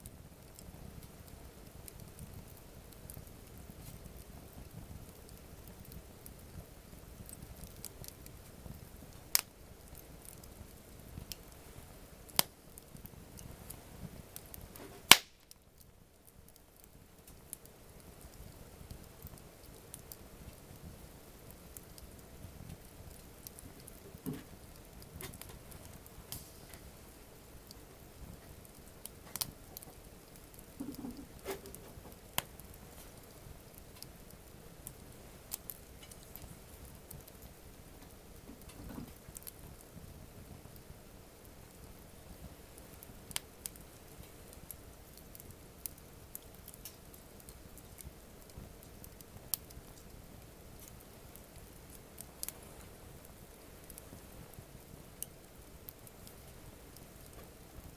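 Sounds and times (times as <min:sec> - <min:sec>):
burning wood popping: 0:00.0 - 0:57.9
campfire crackling: 0:00.0 - 0:57.9.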